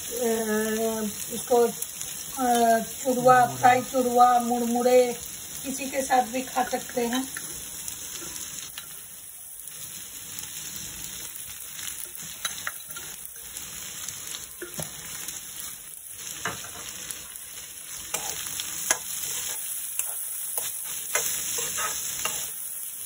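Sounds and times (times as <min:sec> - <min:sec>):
chickpeas sizzling in oil: 0:00.0 - 0:23.0
spatula scraping and clicking pan: 0:12.0 - 0:13.2, 0:18.1 - 0:22.7.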